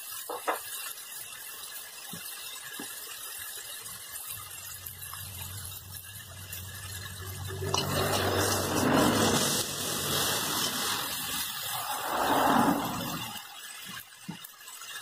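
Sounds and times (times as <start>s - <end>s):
vegetables sizzling in a wok: 0.0s - 15.0s
spatula scraping a wok: 4.2s - 14.1s.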